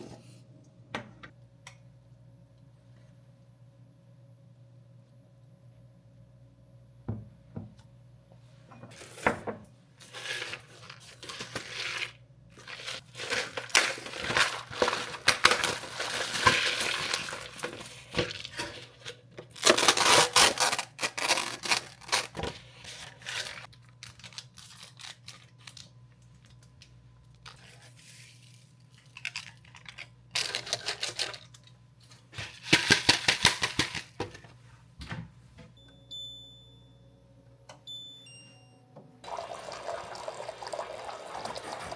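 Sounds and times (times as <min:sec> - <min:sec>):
packaging tearing and crinkling: 0:10.1 - 0:26.6, 0:27.4 - 0:31.7.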